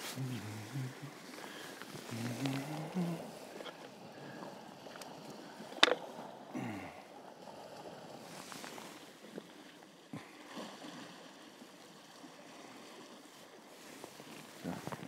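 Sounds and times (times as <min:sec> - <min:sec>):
sea washing on rocky shore: 0:00.0 - 0:15.0.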